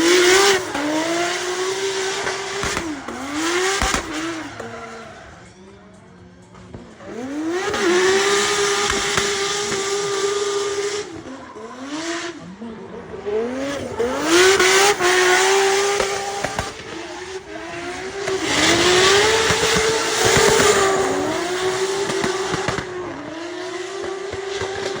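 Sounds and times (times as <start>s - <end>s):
tyres squealing: 0.0s - 5.6s
car engine at rev limiter: 0.0s - 25.0s.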